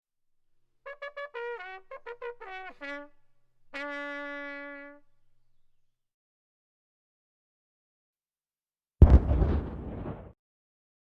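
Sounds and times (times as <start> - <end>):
trumpet playing: 0.8 - 5.8.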